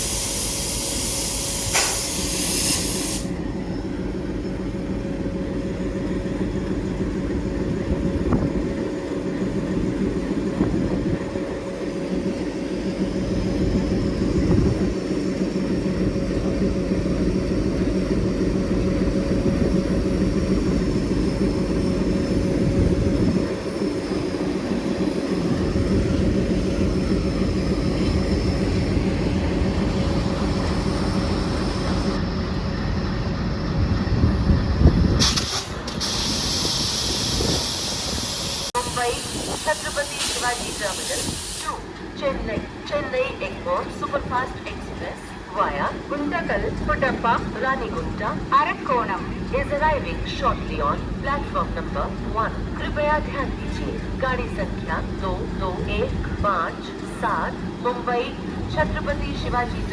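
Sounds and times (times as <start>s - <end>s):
locomotive engine idling: 3.3s - 34.2s.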